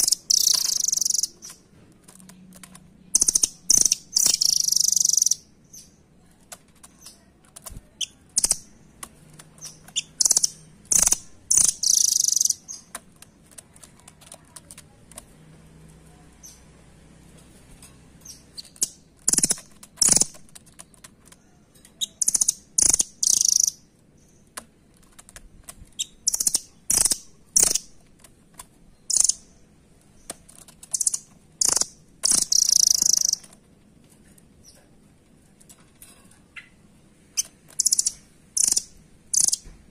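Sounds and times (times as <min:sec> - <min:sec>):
bird chirping: 0:00.0 - 0:14.8, 0:16.3 - 0:16.8, 0:18.2 - 0:24.6, 0:25.9 - 0:28.0, 0:28.8 - 0:33.6, 0:36.4 - 0:39.8.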